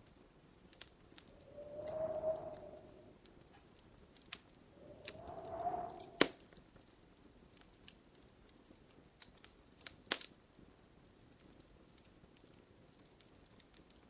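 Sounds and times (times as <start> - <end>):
wood fire crackling: 0.0 - 14.0
short hiss with whistling tone: 1.4 - 3.1, 4.8 - 6.4.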